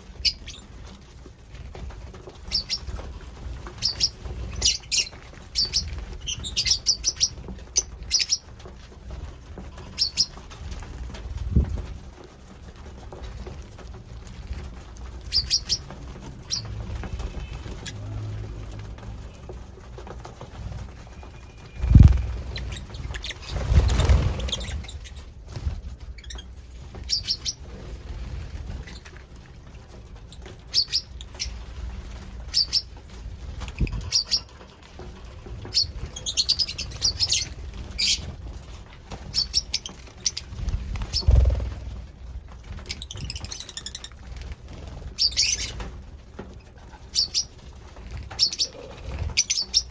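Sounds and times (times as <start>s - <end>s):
birds giving high chirps: 2.4s - 3.1s, 3.7s - 8.5s, 9.8s - 10.4s, 15.2s - 18.3s, 21.0s - 25.3s, 26.1s - 27.6s, 30.3s - 31.6s, 32.4s - 32.9s, 33.7s - 34.6s, 35.6s - 38.3s, 39.3s - 42.1s, 45.2s - 45.9s, 47.1s - 47.6s, 48.3s - 49.9s.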